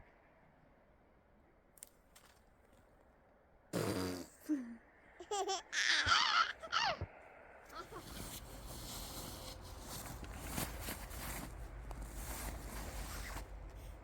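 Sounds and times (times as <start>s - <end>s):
baby babbling and laughing: 5.2s - 7.1s, 7.8s - 8.1s
baby squealing: 5.5s - 7.0s, 7.8s - 8.1s.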